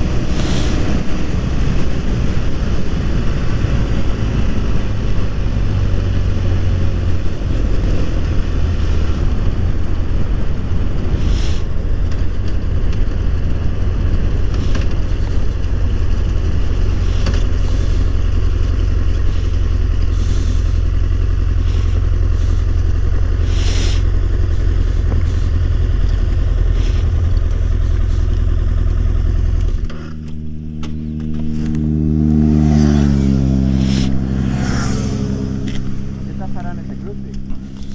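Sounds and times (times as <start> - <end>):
short hissing streaks: 0.0 - 1.1, 11.1 - 11.8, 16.8 - 28.6, 33.7 - 36.6
motorcycle engine running: 0.0 - 37.9
road and wind noise: 0.0 - 37.9
steady hum: 0.0 - 37.9.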